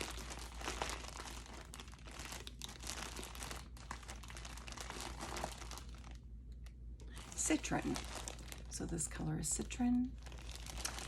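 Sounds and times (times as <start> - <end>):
packaging crinkling: 0.0 - 8.9, 10.2 - 11.0.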